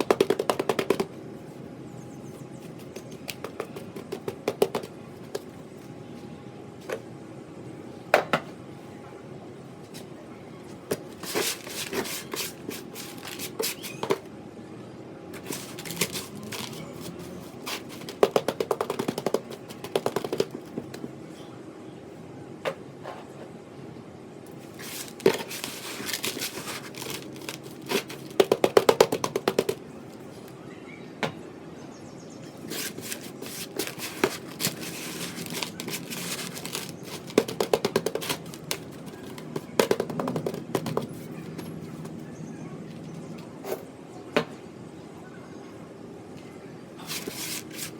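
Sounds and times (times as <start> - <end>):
rapid tapping on sand and cement: 0.0 - 1.1, 2.6 - 5.5, 15.4 - 21.1, 24.8 - 29.8, 32.7 - 41.2.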